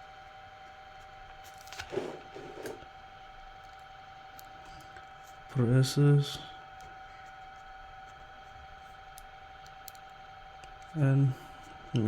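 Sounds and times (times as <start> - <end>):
faint high-pitched electrical hum: 0.0 - 12.0.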